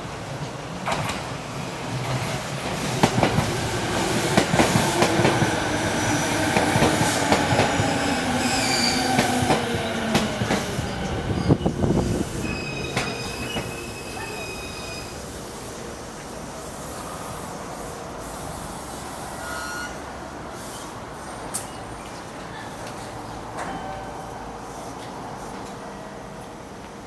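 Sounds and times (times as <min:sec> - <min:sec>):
high wheel squeal: 0:08.4 - 0:09.2, 0:11.3 - 0:15.3, 0:19.2 - 0:20.9.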